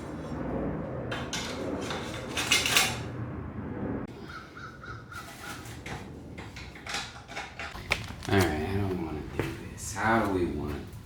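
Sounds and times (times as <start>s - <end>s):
bird calling harsh notes: 4.2s - 5.6s.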